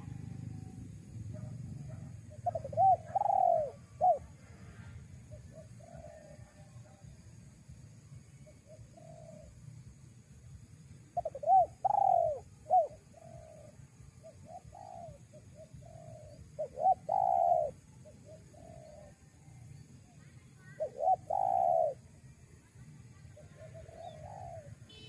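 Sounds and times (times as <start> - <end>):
dove cooing: 0.0 - 4.4, 5.3 - 6.7, 8.7 - 9.5, 11.2 - 19.2, 20.6 - 22.0, 23.4 - 24.8.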